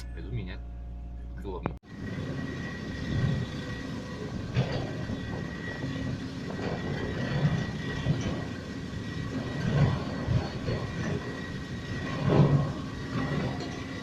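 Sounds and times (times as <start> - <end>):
vehicle rumble: 0.0 - 14.0.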